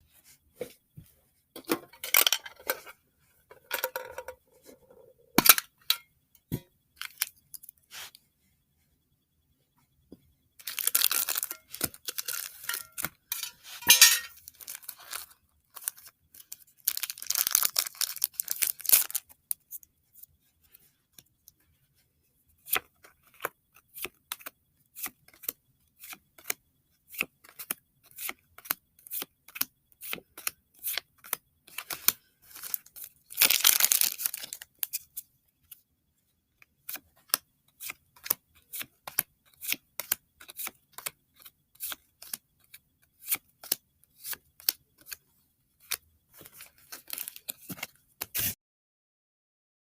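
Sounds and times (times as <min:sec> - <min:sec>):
packaging tearing and crinkling: 0:10.6 - 0:12.8, 0:14.5 - 0:16.1, 0:16.8 - 0:19.3, 0:32.6 - 0:34.6
cards clicking and snapping: 0:36.9 - 0:45.2.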